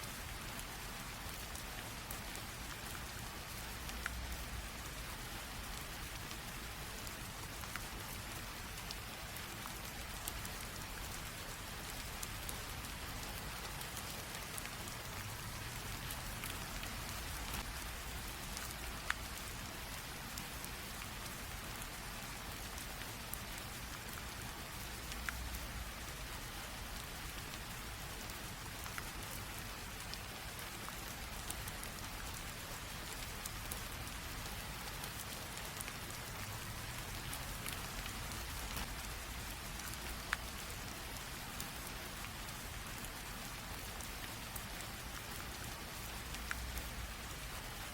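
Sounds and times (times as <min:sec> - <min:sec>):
light rain hiss: 0:00.0 - 0:47.9
raindrop ticks: 0:00.0 - 0:47.9.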